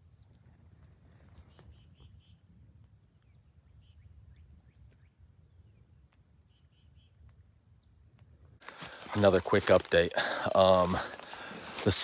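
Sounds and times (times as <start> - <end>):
distant bird calls: 1.3 - 9.2.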